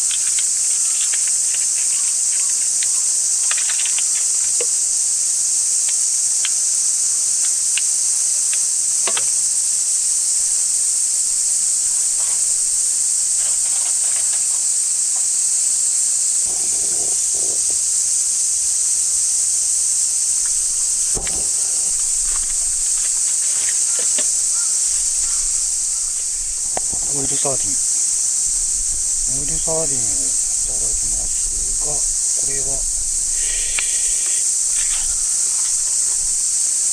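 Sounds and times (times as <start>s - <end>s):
faint clicks: 0.0s - 4.8s, 5.8s - 6.6s, 7.3s - 9.4s, 33.2s - 36.2s
cicadas droning: 0.0s - 36.9s
short knock: 21.1s - 23.1s.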